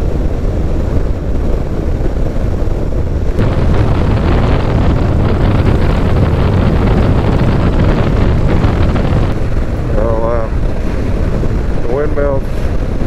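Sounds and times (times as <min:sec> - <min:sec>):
motorcycle road and engine noise: 0:00.0 - 0:13.0
wind rushing over microphone: 0:00.0 - 0:13.0.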